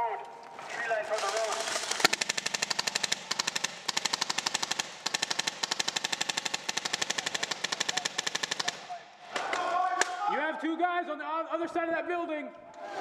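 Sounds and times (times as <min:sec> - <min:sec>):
airsoft gun firing full-auto: 0:01.2 - 0:08.9.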